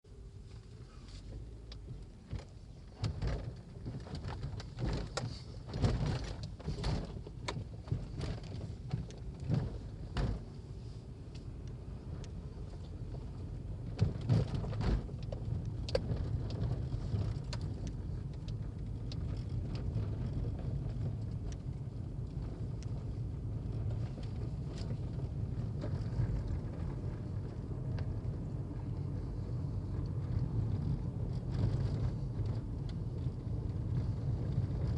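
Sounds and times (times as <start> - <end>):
engine low rumble: 0.0 - 34.9
knocks and clatter: 2.2 - 10.5, 12.8 - 28.4.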